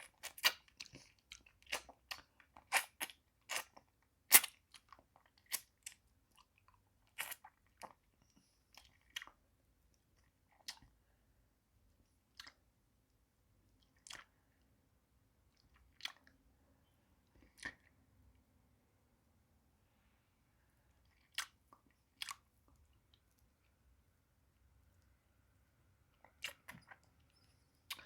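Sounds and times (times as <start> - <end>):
mouth sucking and licking lollipop: 0.0 - 6.0, 21.1 - 22.4, 26.2 - 27.1
sharp wet clicks: 26.2 - 28.0.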